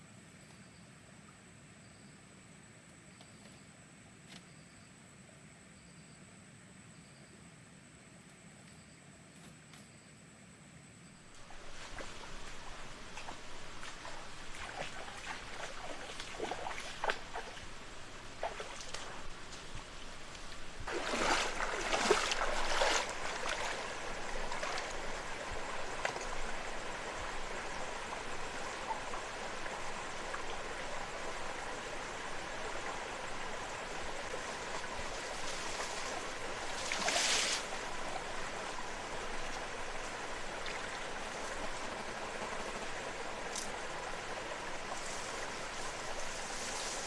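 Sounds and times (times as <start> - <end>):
rushing water: 11.3 - 47.0
water splashing: 11.4 - 19.7, 20.8 - 26.7, 34.3 - 38.4.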